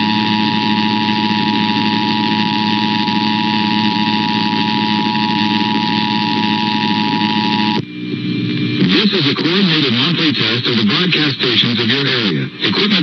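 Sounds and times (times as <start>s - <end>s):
two-tone alarm signal: 0.0s - 7.8s
broadcast hiss and hum: 0.0s - 13.0s.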